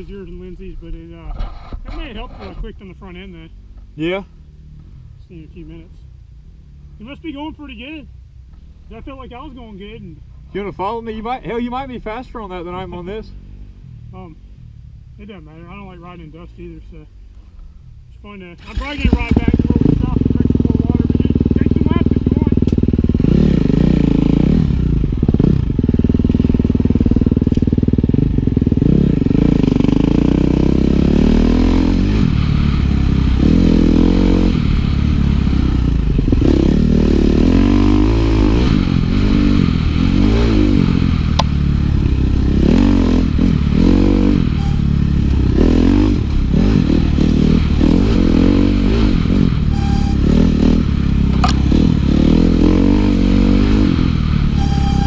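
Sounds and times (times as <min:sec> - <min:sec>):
dirt bike engine revving: 0:18.6 - 0:55.0
sharp clicks: 0:51.3 - 0:51.7.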